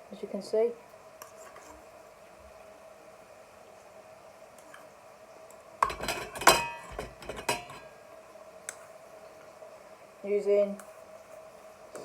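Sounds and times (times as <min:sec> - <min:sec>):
faint steady hum: 0:00.0 - 0:12.0
metal spoon clinking on cookware: 0:05.8 - 0:07.9.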